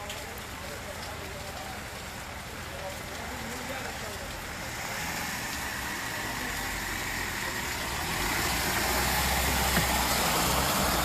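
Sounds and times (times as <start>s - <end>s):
vehicle engine humming: 4.2s - 11.0s.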